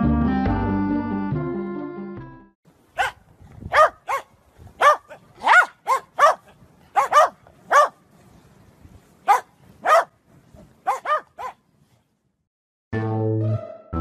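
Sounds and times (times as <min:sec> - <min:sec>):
dog barking high: 0:03.0 - 0:08.0, 0:09.2 - 0:10.2, 0:10.8 - 0:11.6
music track: 0:12.9 - 0:14.0.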